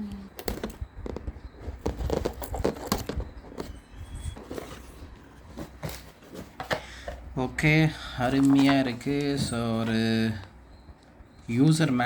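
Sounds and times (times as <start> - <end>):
packaging rustling and crinkling: 0.4 - 7.2.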